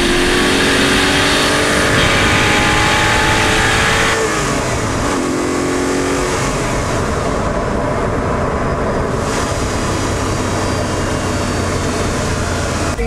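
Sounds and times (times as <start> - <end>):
car engine running: 0.0 - 13.0
road and wind noise: 0.0 - 13.0.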